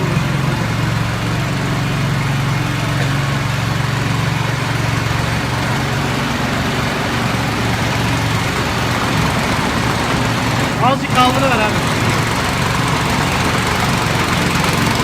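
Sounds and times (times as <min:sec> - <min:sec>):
tiller engine running: 0:00.0 - 0:15.0.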